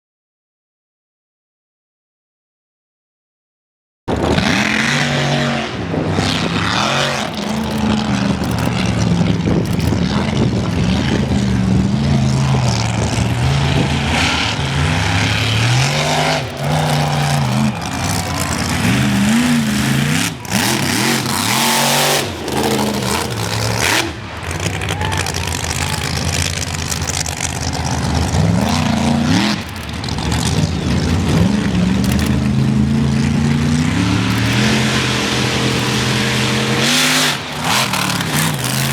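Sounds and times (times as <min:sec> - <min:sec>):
truck engine revving hard: 0:04.1 - 0:38.9.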